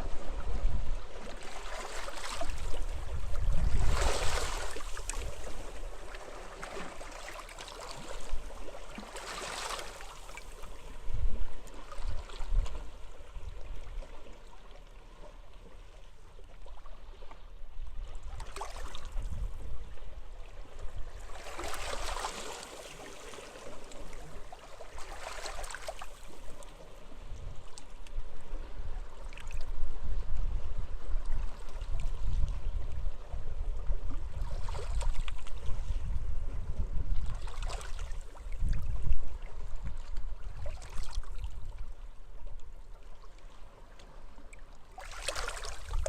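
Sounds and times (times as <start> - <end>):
wind buffeting microphone: 2.4 - 5.9, 19.1 - 20.1, 28.3 - 41.8.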